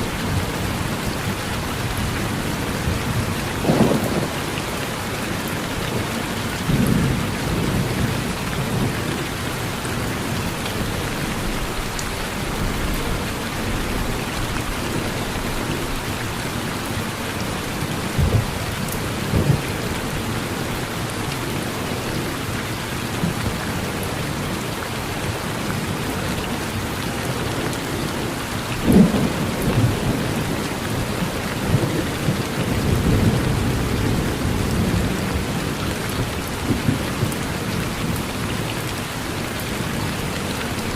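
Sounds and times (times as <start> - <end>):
rain falling on a porch: 0.0 - 40.9
low thunder rumbles: 1.8 - 5.6, 6.6 - 9.2.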